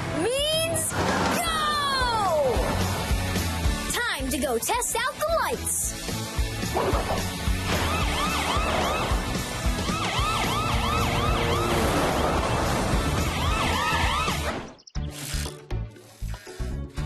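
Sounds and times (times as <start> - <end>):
background music: 0.0 - 17.0
cartoon police siren yelping: 7.7 - 11.8, 13.2 - 14.5.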